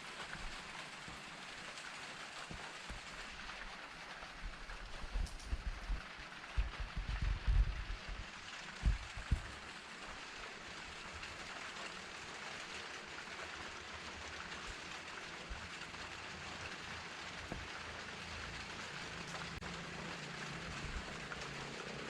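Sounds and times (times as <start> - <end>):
steady rainfall: 0.0 - 22.0.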